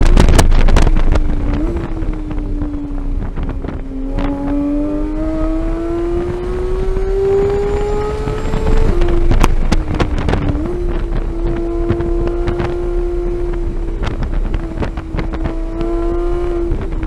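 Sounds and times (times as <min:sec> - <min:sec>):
sports car engine accelerating: 0:00.0 - 0:17.0
wind buffeting: 0:00.0 - 0:17.0.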